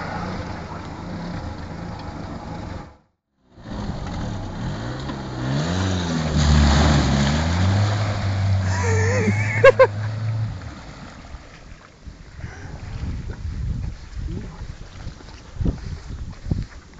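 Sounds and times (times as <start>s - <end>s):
car engine revving: 0.0s - 11.1s
water rushing and splashing: 4.0s - 15.7s.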